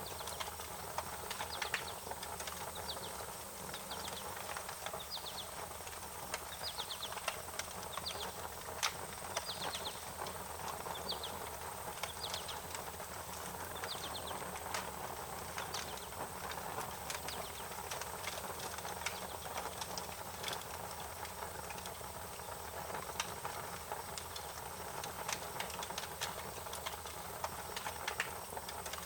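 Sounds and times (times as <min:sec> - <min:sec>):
wood fire crackling: 0:00.0 - 0:29.0
bird chirping: 0:01.4 - 0:05.6, 0:06.4 - 0:07.2, 0:07.8 - 0:08.4, 0:09.3 - 0:10.1, 0:10.8 - 0:11.4, 0:12.0 - 0:12.7, 0:13.6 - 0:14.6, 0:17.1 - 0:17.8.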